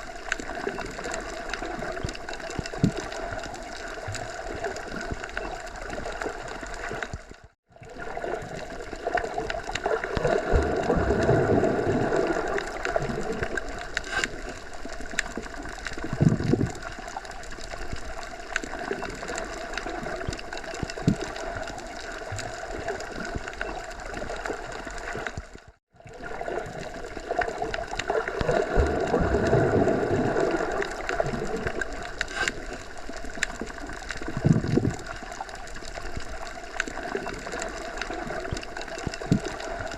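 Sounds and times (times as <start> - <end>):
rushing water-like noise: 8.0 - 25.4, 26.2 - 39.9.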